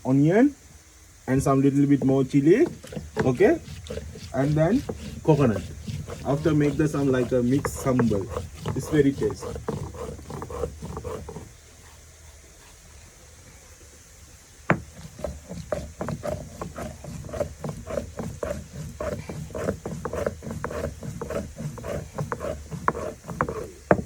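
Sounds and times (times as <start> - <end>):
hand grinding knocks and scrapes: 1.8 - 11.6, 14.7 - 24.0.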